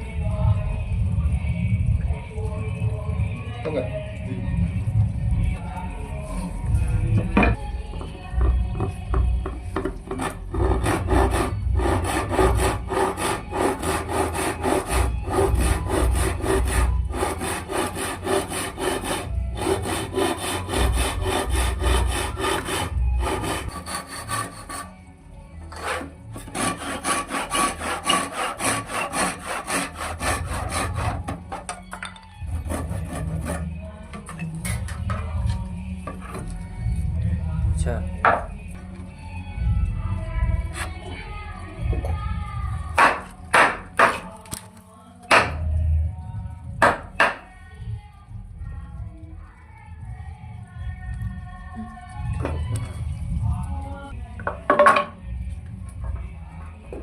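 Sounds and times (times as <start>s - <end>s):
hand saw cutting wood: 10.1s - 25.0s, 25.7s - 31.8s, 32.5s - 33.7s.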